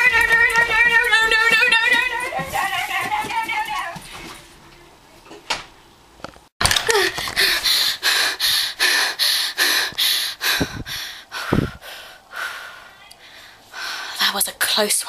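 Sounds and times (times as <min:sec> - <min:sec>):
person gasping for breath: 0:06.8 - 0:14.2.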